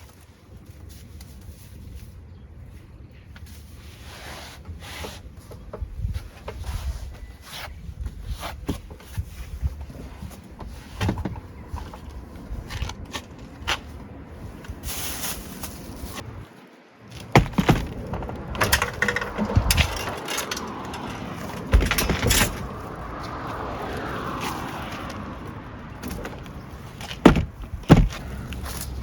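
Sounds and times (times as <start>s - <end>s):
clattering knocks: 17.1s - 22.9s, 26.0s - 28.3s
objects clicking and rustling: 17.1s - 23.9s.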